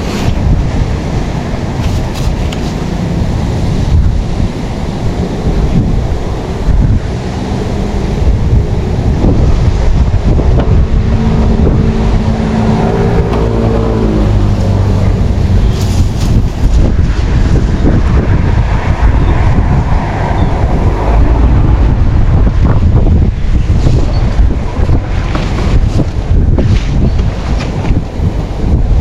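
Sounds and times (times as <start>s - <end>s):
engine hum: 0.0s - 29.0s
wind buffeting microphone: 0.0s - 29.0s.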